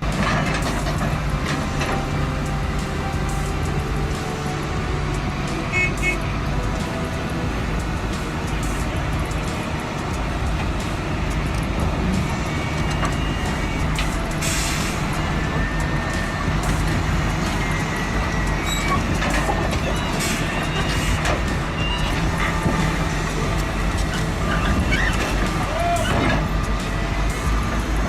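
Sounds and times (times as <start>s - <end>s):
truck engine running: 0.0s - 28.0s
air hiss: 14.3s - 15.2s.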